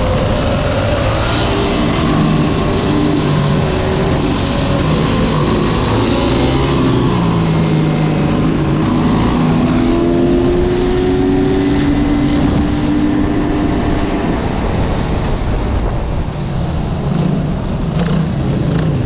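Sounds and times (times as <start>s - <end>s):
road and wind noise: 0.0s - 19.0s
motorbike engine running: 0.1s - 7.4s, 17.2s - 19.0s.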